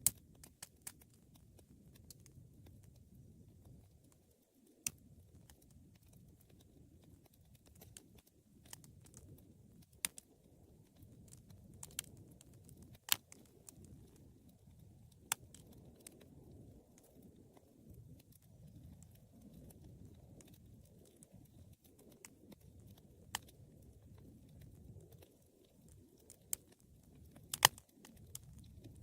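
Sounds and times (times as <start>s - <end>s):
fire rumbling and crackling: 0.0s - 29.0s
sharp fire pops: 11.0s - 14.2s, 25.9s - 29.0s.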